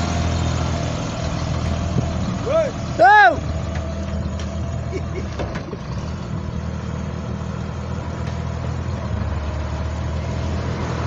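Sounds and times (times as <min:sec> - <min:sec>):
bus engine running at low revs: 0:00.0 - 0:11.0.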